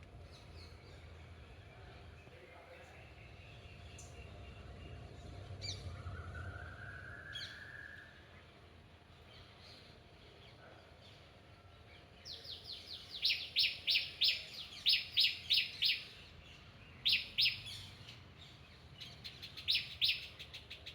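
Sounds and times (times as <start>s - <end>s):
bird chirping: 12.3s - 20.9s.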